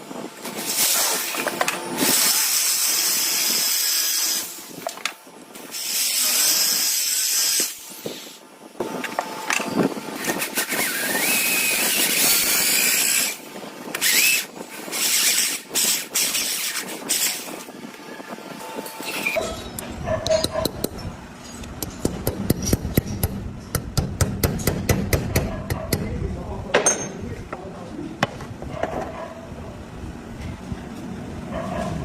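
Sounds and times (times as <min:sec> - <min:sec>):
arc welding crackling hiss: 0:05.5 - 0:08.5.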